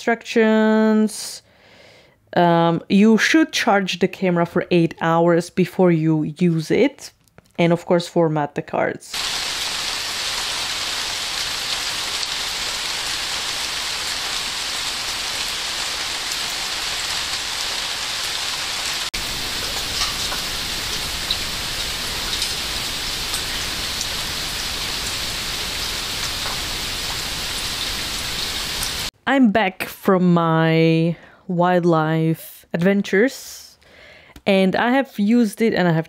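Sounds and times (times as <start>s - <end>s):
steady rain hissing: 9.2s - 29.1s.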